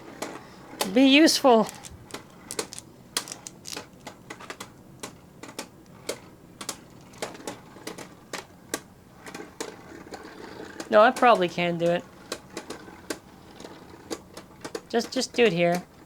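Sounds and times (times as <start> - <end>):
spinning tops clicking together: 0.8 - 8.9.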